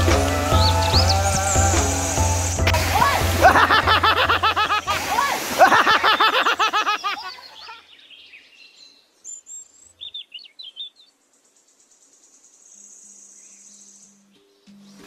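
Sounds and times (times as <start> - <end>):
small bird chirping: 7.0 - 15.0.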